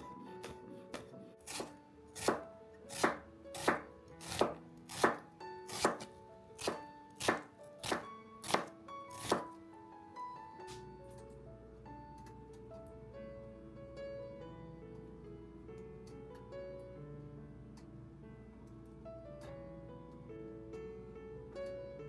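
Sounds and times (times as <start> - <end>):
soft background music: 0.0 - 22.0
knife chopping on cutting board: 0.4 - 9.5.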